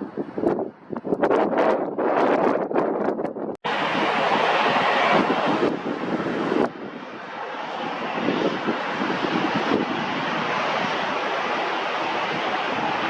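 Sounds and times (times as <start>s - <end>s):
jet engine rushing: 3.6s - 13.0s.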